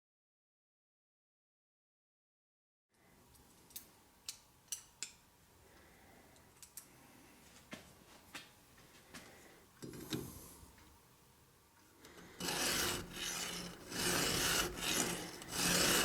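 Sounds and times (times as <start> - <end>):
light clicks and taps of tools: 3.3 - 5.2, 6.3 - 6.9
file scraping chain: 12.4 - 16.0.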